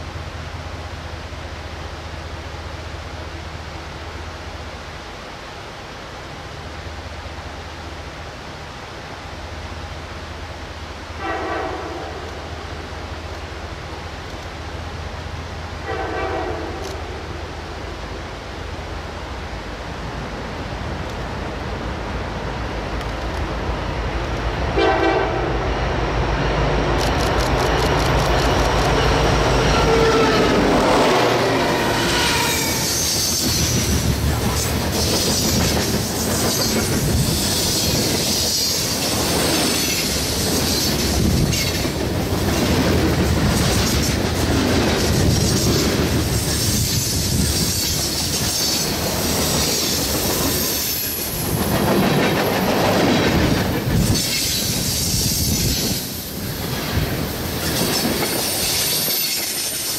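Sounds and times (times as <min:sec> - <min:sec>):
diesel locomotive engine rumble: 0:00.0 - 0:59.9
train horn blasts: 0:11.2 - 0:12.3, 0:15.8 - 0:16.9, 0:24.7 - 0:25.7, 0:29.1 - 0:33.4
train wheel squeal: 0:27.8 - 0:34.0, 0:34.9 - 0:41.9, 0:45.3 - 0:52.9, 0:53.9 - 0:56.4, 0:57.6 - 0:59.9.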